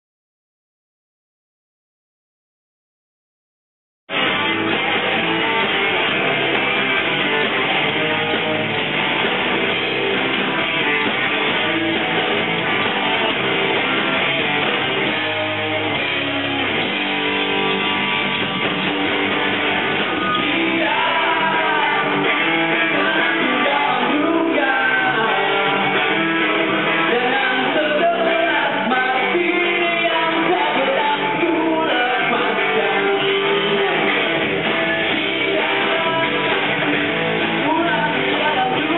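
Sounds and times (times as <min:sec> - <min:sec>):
strummed guitars: 0:04.1 - 0:38.9
person singing: 0:20.3 - 0:36.8, 0:37.4 - 0:38.9.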